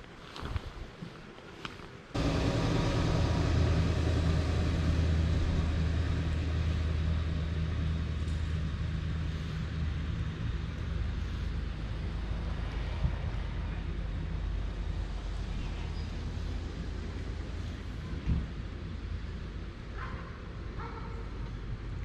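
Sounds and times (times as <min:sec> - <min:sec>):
low engine drone: 0:02.2 - 0:18.2.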